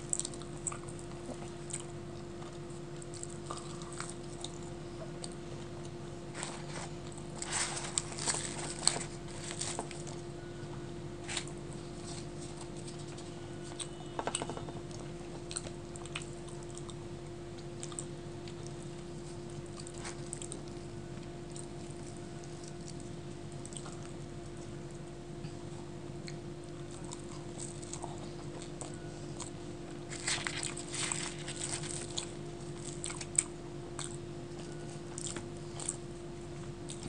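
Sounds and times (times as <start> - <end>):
person chewing food: 0.0 - 10.6, 11.2 - 37.0
steady low hum: 0.0 - 37.0.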